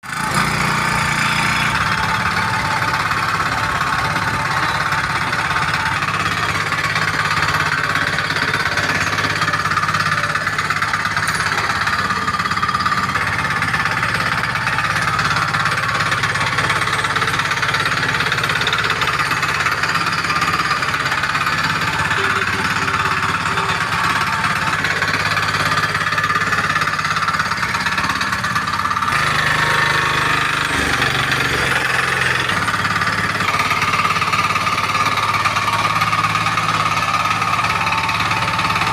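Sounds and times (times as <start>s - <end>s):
diesel engine running steadily: 0.0s - 38.9s.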